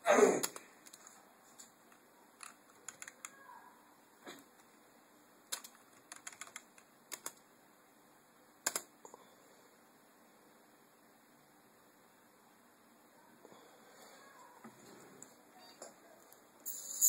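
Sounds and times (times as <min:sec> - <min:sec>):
computer keyboard clicks: 0:02.4 - 0:03.4, 0:05.5 - 0:07.4, 0:08.6 - 0:08.9.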